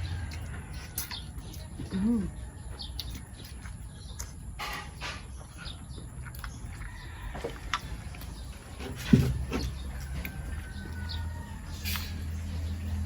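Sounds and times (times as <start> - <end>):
clicks and taps of eating by hand: 0.0 - 8.6.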